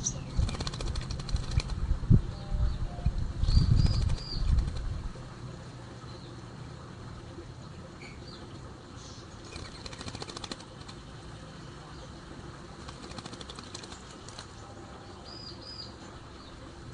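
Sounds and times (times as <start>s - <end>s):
bird wings flapping: 0.4s - 1.8s, 3.7s - 5.0s, 9.4s - 11.1s, 12.8s - 14.6s.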